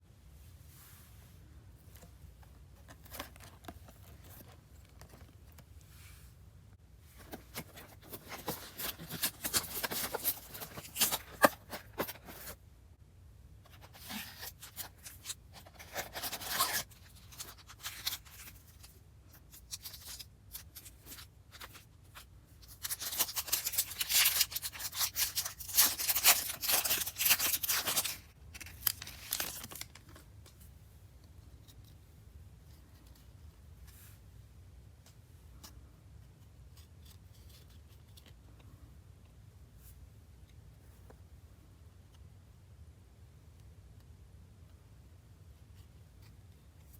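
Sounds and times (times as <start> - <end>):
plastic wrapping crinkling: 22.6 - 30.1.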